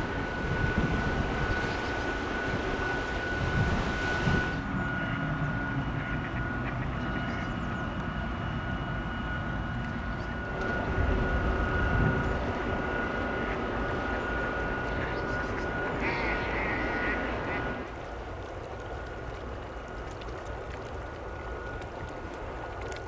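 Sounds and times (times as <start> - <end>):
ship engines rumbling: 0.0 - 8.3, 10.0 - 18.0
thin steady whine: 0.0 - 23.0.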